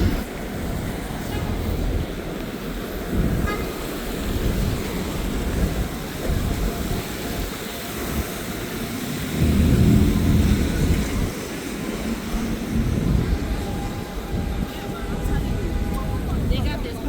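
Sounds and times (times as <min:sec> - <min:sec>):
street traffic rumble: 0:00.0 - 0:17.0
vehicle passing: 0:09.1 - 0:12.2.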